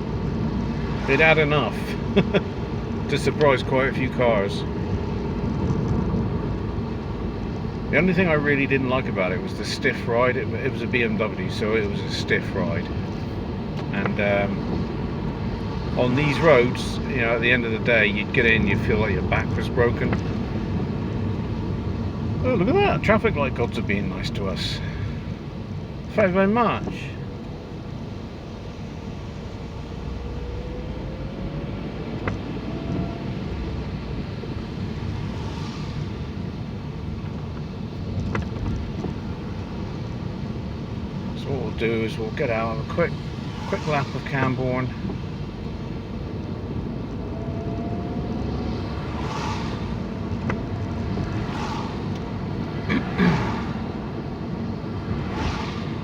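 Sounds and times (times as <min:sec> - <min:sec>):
car engine and tyre noise: 0:00.0 - 0:56.0
engine tone rising in pitch: 0:30.0 - 0:33.8.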